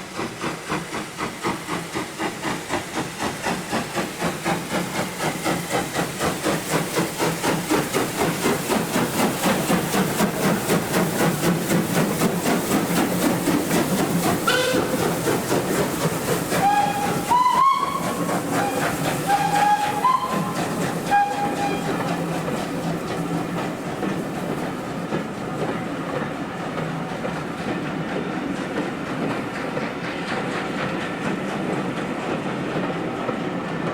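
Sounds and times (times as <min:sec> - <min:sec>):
steam locomotive exhaust beat: 0:00.0 - 0:33.9
steam whistle blasts: 0:14.4 - 0:15.2, 0:16.5 - 0:22.2.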